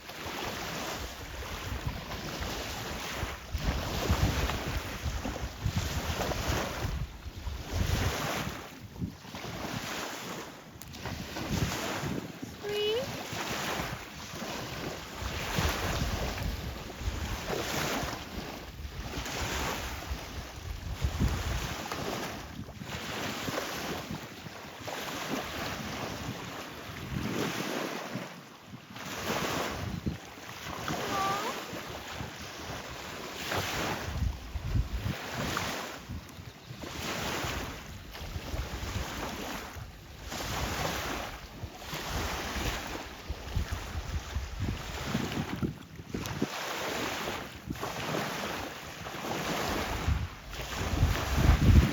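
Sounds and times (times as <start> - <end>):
wind buffeting microphone: 0.3 - 51.9
surf: 29.0 - 36.2.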